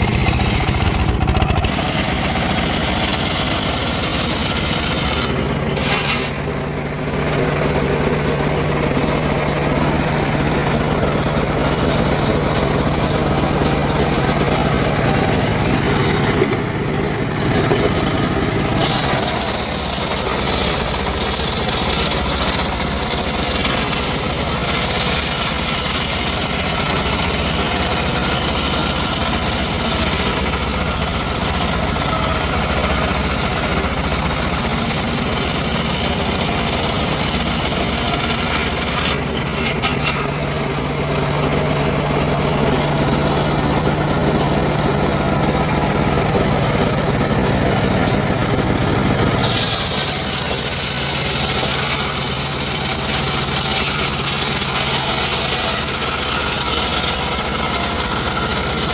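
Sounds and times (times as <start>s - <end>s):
sawmill engine running: 0.0s - 58.9s
saw blade hissing through wood: 18.8s - 39.3s, 49.4s - 57.2s.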